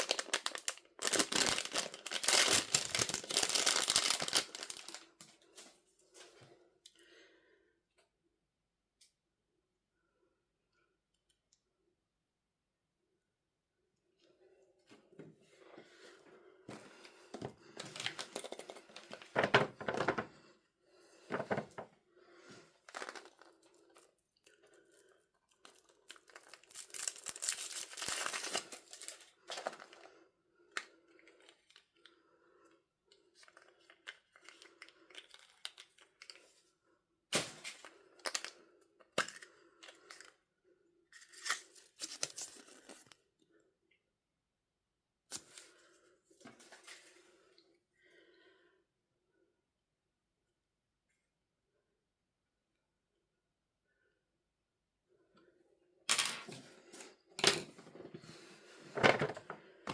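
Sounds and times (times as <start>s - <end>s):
packaging tearing and crinkling: 0.0s - 5.0s, 25.6s - 29.9s.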